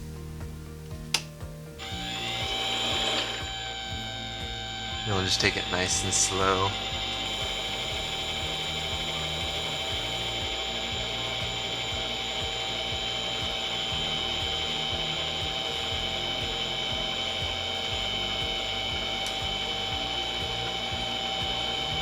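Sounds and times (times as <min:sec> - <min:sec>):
metal lathe whining: 0:01.8 - 0:22.0.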